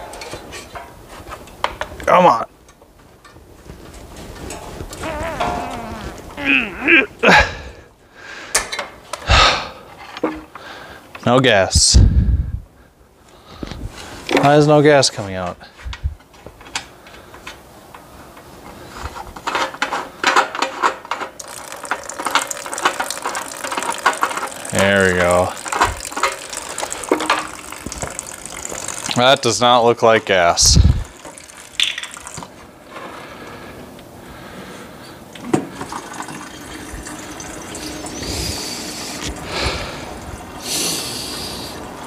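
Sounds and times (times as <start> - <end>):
liquid trickling into container: 21.4 - 29.8, 30.4 - 32.5, 35.8 - 39.5.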